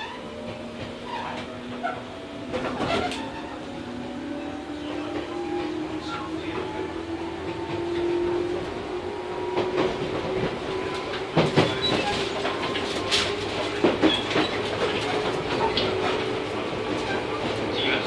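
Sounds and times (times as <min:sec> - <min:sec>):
wheels clacking over rail joints: 0:00.0 - 0:04.0, 0:04.8 - 0:18.0
electric train hum: 0:00.0 - 0:18.0.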